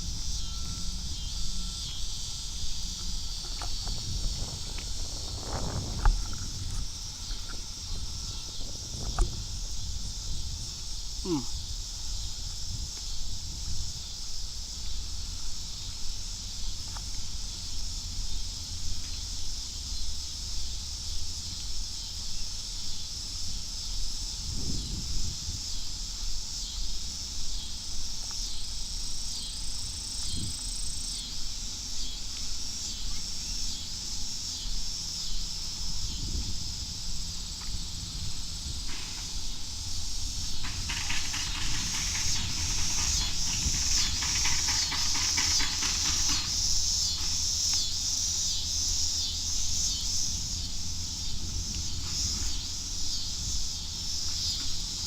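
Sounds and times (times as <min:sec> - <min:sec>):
pulsing low rumble on microphone: 0:00.0 - 0:21.8, 0:34.7 - 0:40.9
insects chirring: 0:00.0 - 0:55.0.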